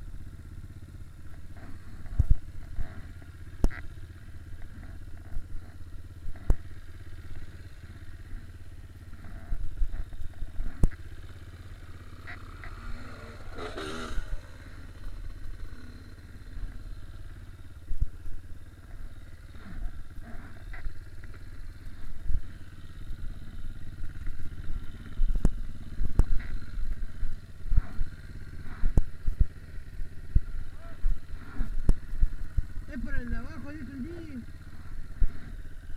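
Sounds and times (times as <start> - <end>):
dirt bike engine running: 0.0 - 35.9.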